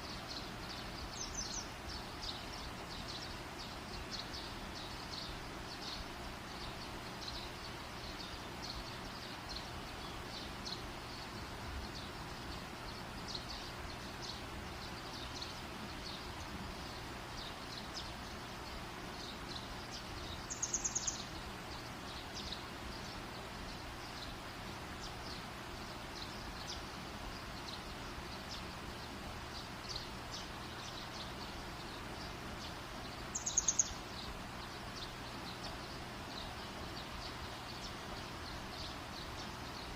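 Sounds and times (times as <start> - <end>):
campfire hiss: 0.0 - 39.9
high scattered ticks: 20.4 - 21.2
bird trilling: 33.3 - 34.0.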